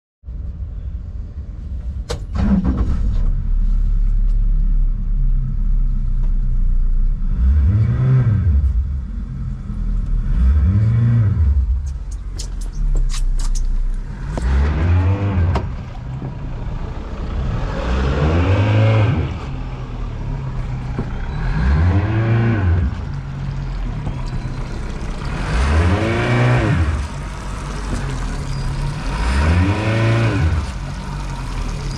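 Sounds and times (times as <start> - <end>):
outboard motor revving: 14.0 - 31.9.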